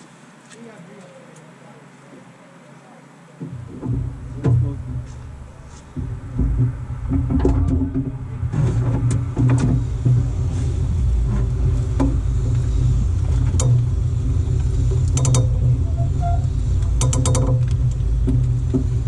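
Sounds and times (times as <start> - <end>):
car rumbling: 3.4 - 19.0
axle joint clicking: 15.1 - 15.6, 16.9 - 17.8.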